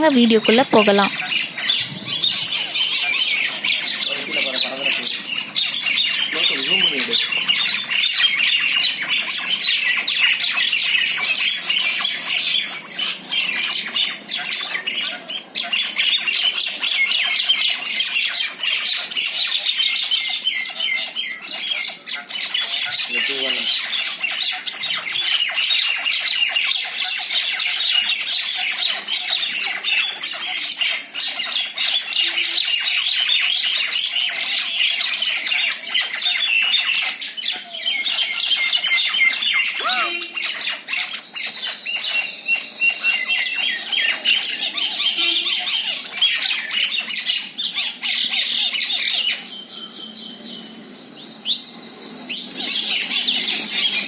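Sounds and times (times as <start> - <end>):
mynas squawking: 0.0 - 9.7, 39.1 - 41.2.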